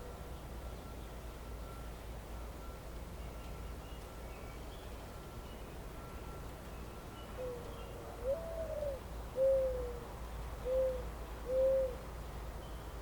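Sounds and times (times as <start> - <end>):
bird hooting coos: 7.3 - 12.1.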